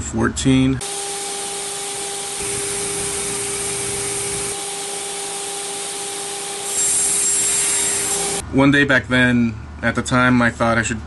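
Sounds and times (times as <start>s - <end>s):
woodworking power tool running: 0.8s - 8.4s.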